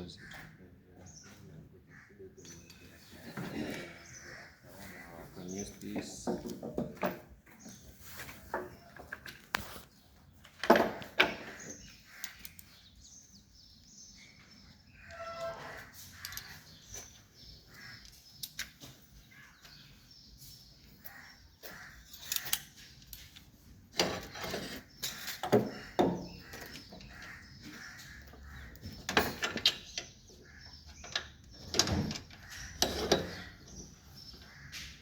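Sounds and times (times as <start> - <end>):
hand tools knocking and clattering: 5.7 - 7.6, 10.5 - 11.8, 23.2 - 27.8, 28.8 - 30.1.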